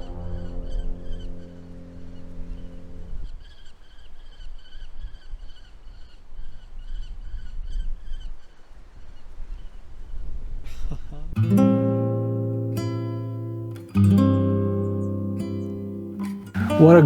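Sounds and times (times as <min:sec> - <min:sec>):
low wind rumble: 0:00.0 - 0:03.6
bird chirping: 0:00.0 - 0:08.6.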